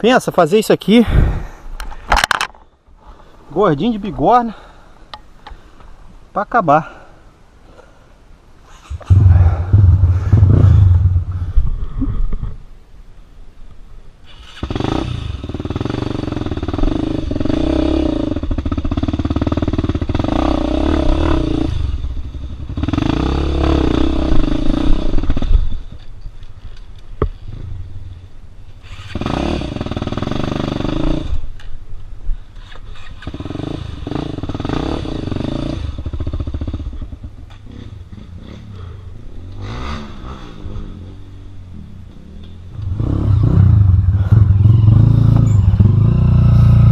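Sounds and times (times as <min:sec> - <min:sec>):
motorcycle engine revving: 0:08.8 - 0:11.7, 0:14.3 - 0:25.8, 0:28.8 - 0:31.5, 0:33.0 - 0:46.9.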